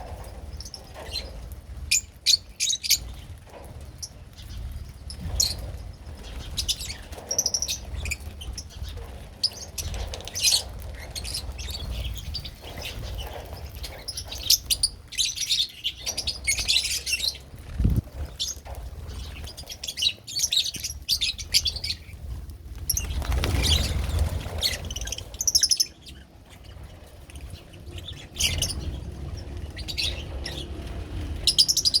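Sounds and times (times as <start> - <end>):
rustle: 0.0 - 32.0
lovebirds chirping: 4.0 - 32.0.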